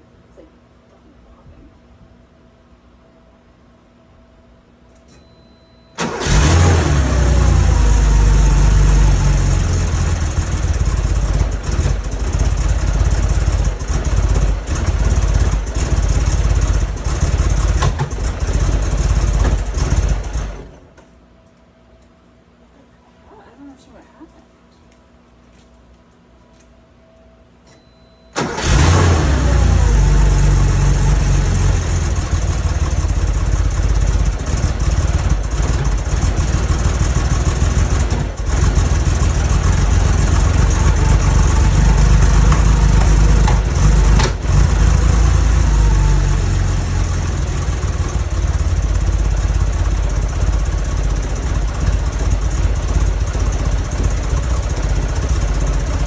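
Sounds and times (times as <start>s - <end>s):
car engine starting and running roughly: 6.0s - 21.0s, 28.4s - 56.0s.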